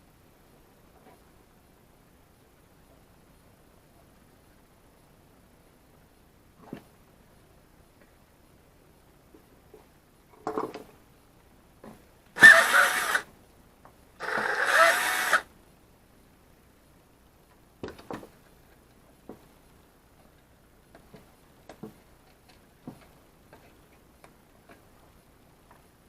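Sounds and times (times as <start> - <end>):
electric drill running: 12.4 - 13.2, 14.2 - 15.4.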